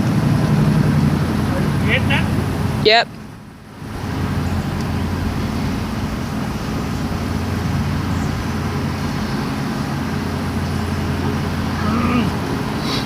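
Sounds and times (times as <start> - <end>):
low engine rumble: 0.0 - 13.0
wide hiss: 3.8 - 13.0.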